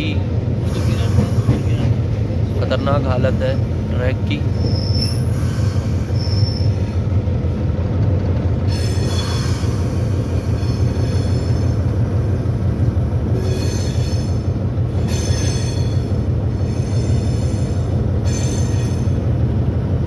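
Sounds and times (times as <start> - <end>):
diesel locomotive rumbling: 0.0 - 20.0
high-pitched wheel squeal: 4.5 - 7.0, 8.7 - 11.9, 13.4 - 14.4, 15.0 - 19.2.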